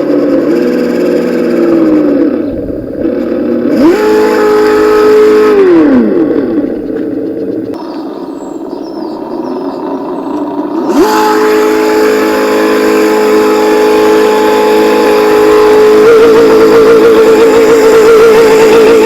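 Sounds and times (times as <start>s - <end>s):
simulated engine from small speaker: 0.0s - 19.0s.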